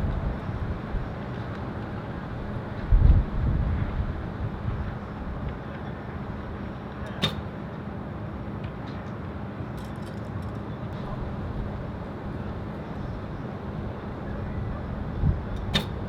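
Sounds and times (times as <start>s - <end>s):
wind buffeting microphone: 0.0s - 7.3s, 10.9s - 16.0s
sharp click: 7.0s - 7.5s, 15.6s - 16.0s.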